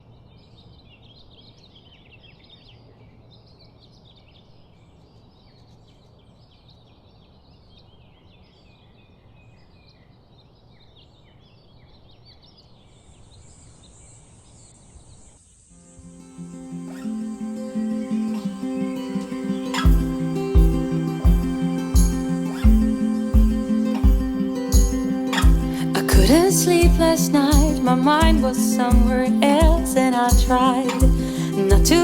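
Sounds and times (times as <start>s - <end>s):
small birds chirping: 0.0s - 15.7s
outdoor background noise: 0.0s - 32.0s
high-pitched hum: 15.7s - 32.0s.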